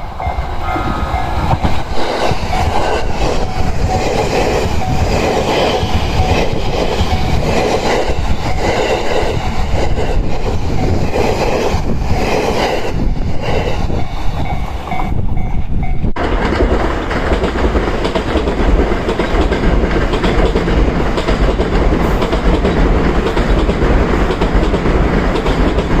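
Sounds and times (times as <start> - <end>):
train passing close by: 0.0 - 26.0
train wheels clattering over rail joints: 16.2 - 26.0.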